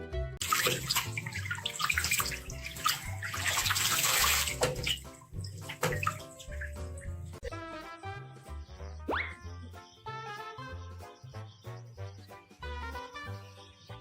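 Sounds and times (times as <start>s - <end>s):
water splashing from a tap: 0.4s - 7.4s.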